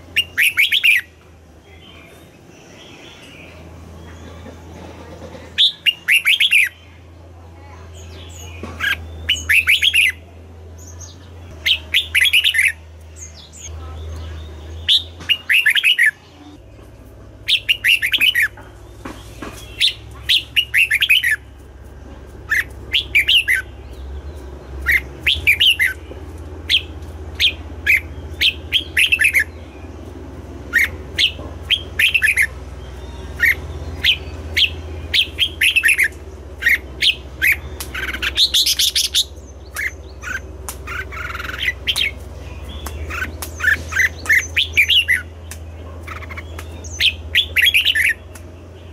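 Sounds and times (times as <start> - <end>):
steady low hum: 0.0 - 48.9
bird singing whistled notes: 0.1 - 3.6, 5.6 - 6.8, 8.0 - 10.2, 19.2 - 21.5, 22.5 - 26.1, 30.7 - 48.7.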